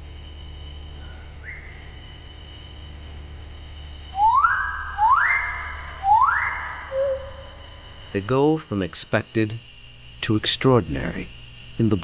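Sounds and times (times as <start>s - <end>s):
insects chorus: 0.0s - 12.0s
bird rising calls: 4.2s - 7.6s.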